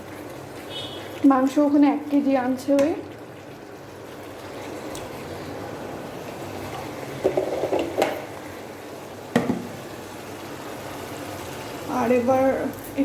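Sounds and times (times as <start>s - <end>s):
curry sizzling and bubbling: 0.0s - 13.0s
kitchenware clattering: 7.2s - 8.3s.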